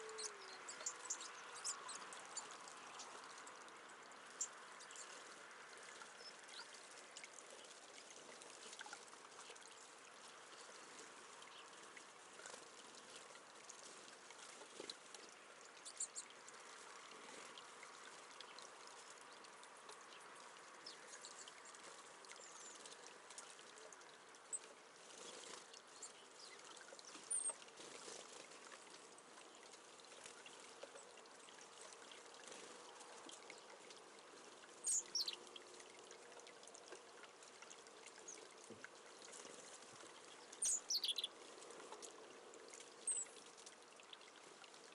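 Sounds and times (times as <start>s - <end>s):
water trickling: 0.0s - 44.9s
birds chirping: 34.9s - 35.4s, 40.6s - 41.3s.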